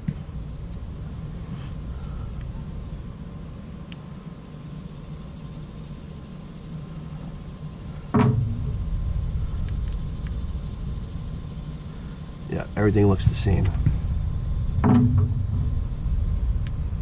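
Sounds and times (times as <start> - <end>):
low background rumble: 0.0 - 17.0
loud knock: 8.2 - 8.8, 14.8 - 15.8.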